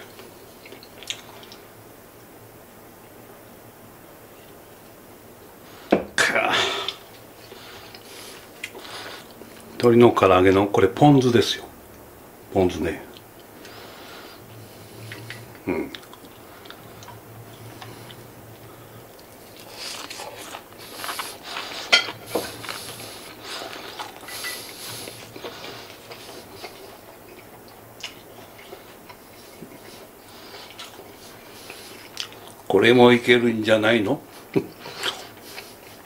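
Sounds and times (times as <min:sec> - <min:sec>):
person chewing: 0:00.1 - 0:01.6, 0:06.7 - 0:09.8, 0:13.1 - 0:32.7, 0:34.3 - 0:36.0.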